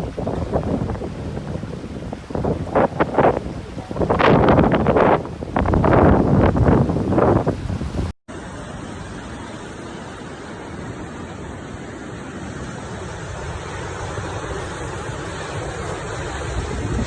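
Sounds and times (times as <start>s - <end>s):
wind buffeting the microphone: 0.0s - 8.1s, 11.8s - 17.0s
storm rushing noise: 0.0s - 17.0s.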